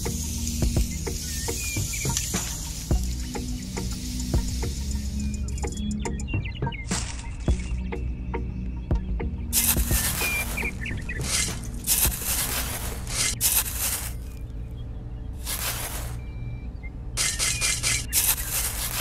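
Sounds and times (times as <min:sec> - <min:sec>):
small shovel digging in sand: 0:09.6 - 0:14.4, 0:15.4 - 0:16.2, 0:17.2 - 0:19.0.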